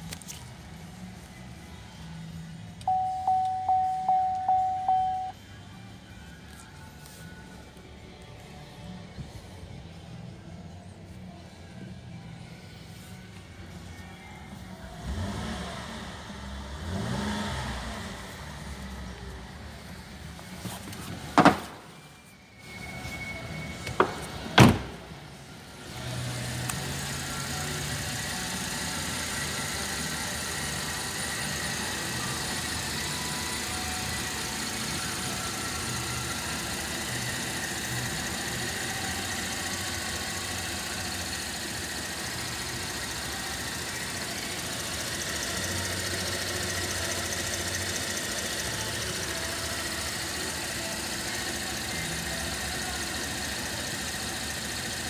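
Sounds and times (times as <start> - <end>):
car engine idling: 0.1 - 5.4, 22.7 - 55.0.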